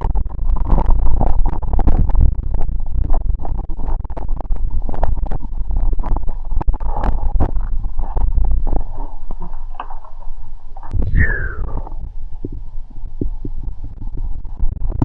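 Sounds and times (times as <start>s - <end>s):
wind buffeting microphone: 6.9s - 14.9s.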